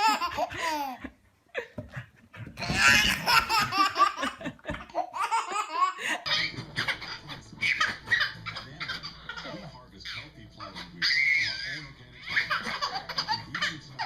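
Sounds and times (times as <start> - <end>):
hearty laughter: 0.0 - 9.8
voices: 6.0 - 14.0.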